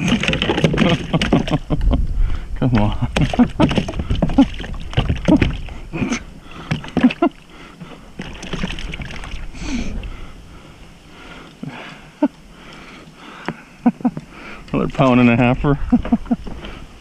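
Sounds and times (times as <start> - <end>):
fish splashing at water surface: 8.1 - 9.6.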